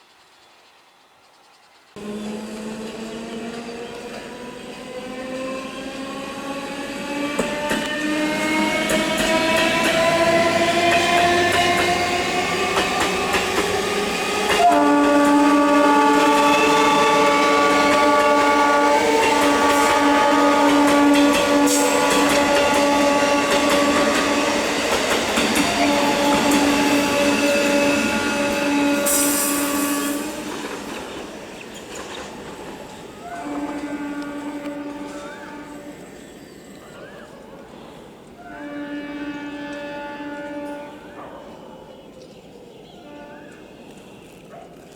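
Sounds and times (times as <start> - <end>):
electric train whine: 0.6 - 41.2
train horn blast: 4.4 - 30.7, 33.2 - 36.2, 38.4 - 41.4, 43.0 - 44.4.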